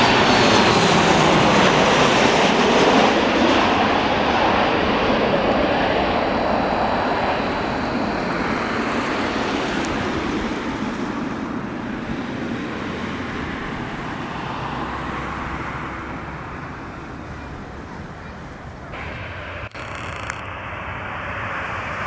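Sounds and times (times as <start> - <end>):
jet engine rush: 0.0 - 22.0.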